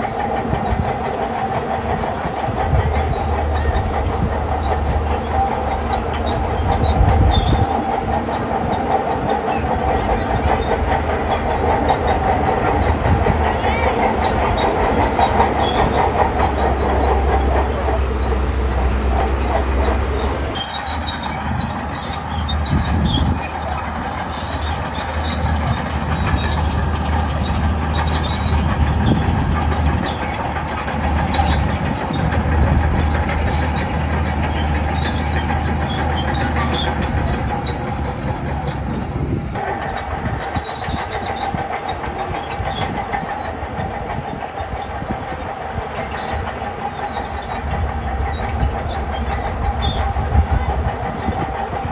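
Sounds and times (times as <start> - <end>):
diesel engine under load: 0.0 - 51.9
steel tracks clattering and squealing: 0.0 - 51.9.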